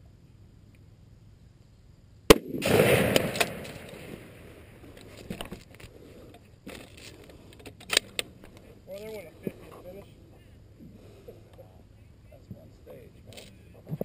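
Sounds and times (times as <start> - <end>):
rifle shot with echo: 2.3 - 4.7.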